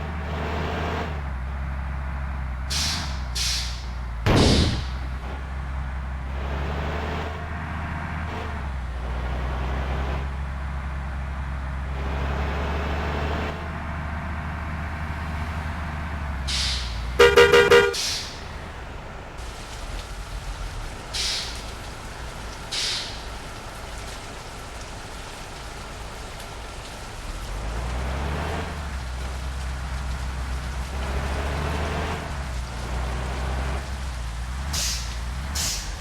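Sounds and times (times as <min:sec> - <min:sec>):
bus diesel engine humming: 0:00.0 - 0:36.0
horn pulsed blasts: 0:17.2 - 0:18.1.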